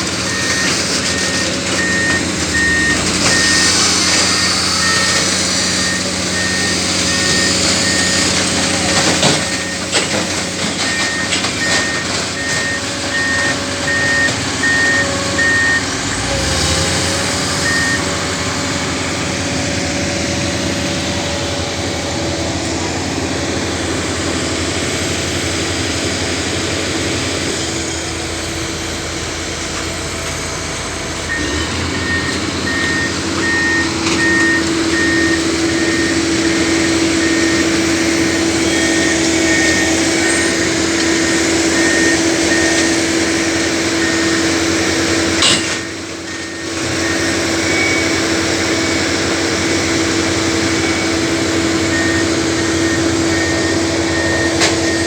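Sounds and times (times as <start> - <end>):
diesel engine running: 0.0 - 55.0
warning alarm beeping: 10.8 - 18.3.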